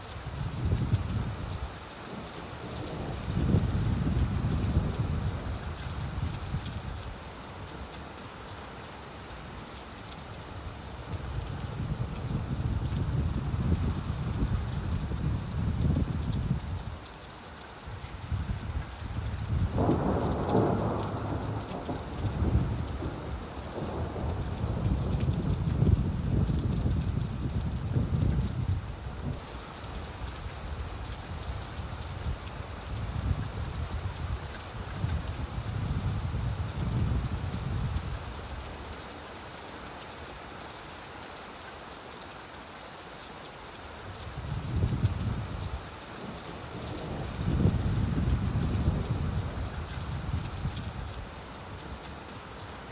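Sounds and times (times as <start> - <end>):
steady rain: 0.0 - 52.9
low rumble of thunder: 2.6 - 7.1, 18.3 - 29.4, 44.2 - 45.8, 46.4 - 51.3
distant thunder rumble: 19.6 - 27.2.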